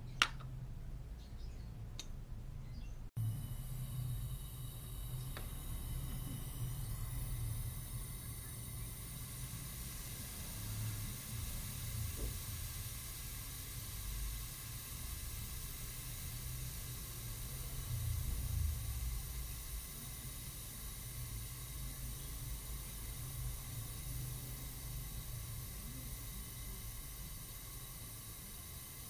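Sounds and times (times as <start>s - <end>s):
pressurised gas hissing: 3.2s - 29.0s
low uneven rumble: 16.3s - 27.5s.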